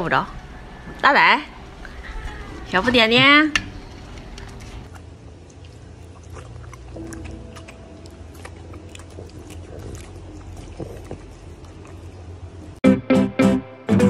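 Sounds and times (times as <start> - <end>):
low steady hum: 0.0 - 12.8
dog licking its lips: 4.3 - 12.3.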